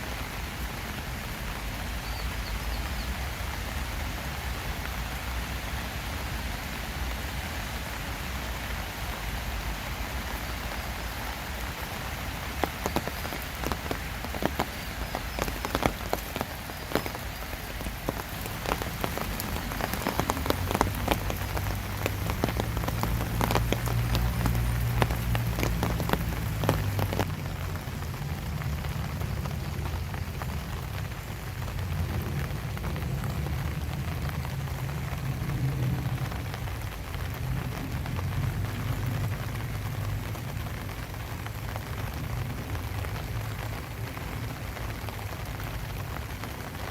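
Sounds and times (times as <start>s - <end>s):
rain falling: 0.0s - 46.9s
drips tapping on a surface: 18.0s - 27.3s.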